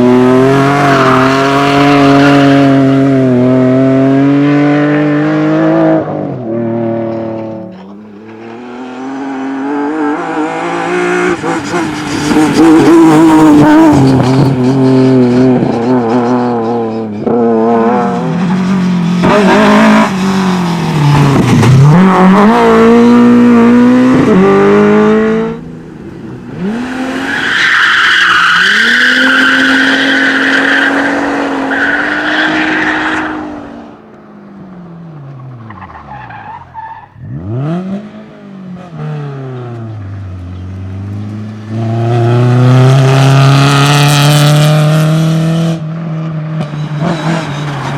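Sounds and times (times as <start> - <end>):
rally car engines revving: 0.0 - 47.9
tyre squeal: 11.6 - 18.3, 27.0 - 33.5, 46.6 - 47.9.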